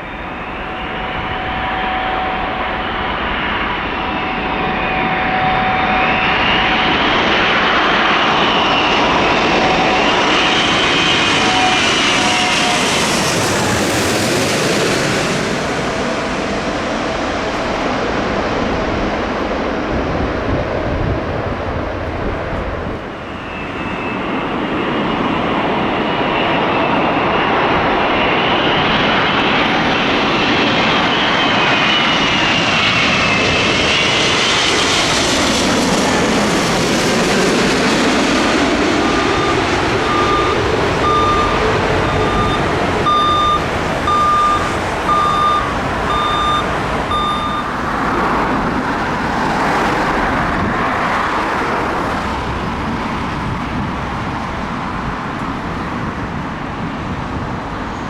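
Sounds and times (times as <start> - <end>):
jet engines passing overhead: 0.0 - 58.0
short beeps: 39.0 - 47.9.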